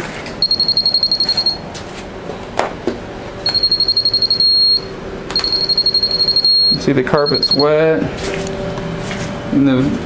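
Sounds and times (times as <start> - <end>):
moisture meter beeping rapidly: 0.4 - 1.6, 3.4 - 7.8.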